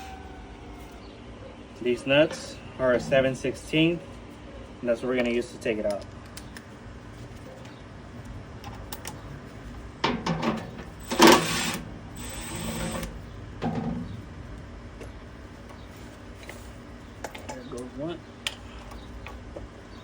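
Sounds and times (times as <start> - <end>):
short mechanical bursts: 11.0 - 13.2
tool whirring: 11.0 - 13.2.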